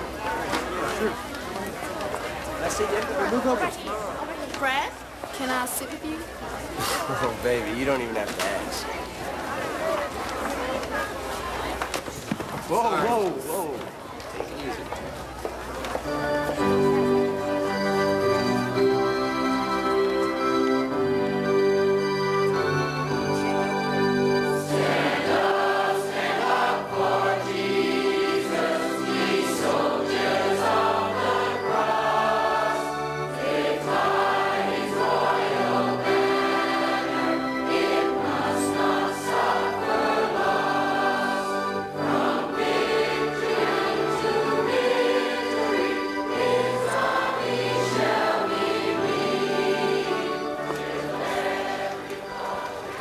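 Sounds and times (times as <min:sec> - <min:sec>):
choir singing a hymn: 0:16.2 - 0:53.0.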